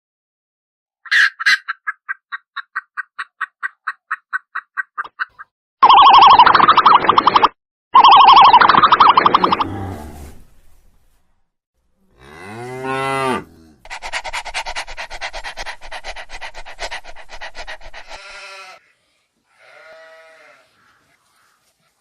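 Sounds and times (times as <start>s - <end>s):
animal calling: 13.2s - 18.9s.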